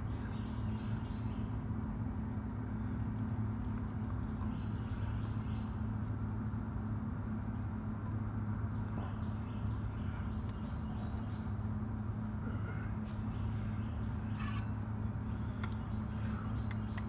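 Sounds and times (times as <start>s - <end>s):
steady low hum: 0.0s - 17.0s
faint bird chirps: 12.2s - 17.0s.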